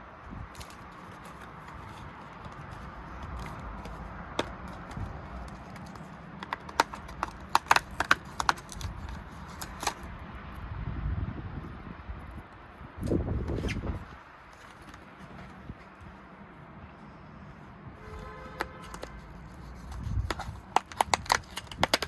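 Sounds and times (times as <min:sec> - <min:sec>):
plastic pieces clicking and tapping: 0:00.6 - 0:10.1, 0:18.6 - 0:22.0.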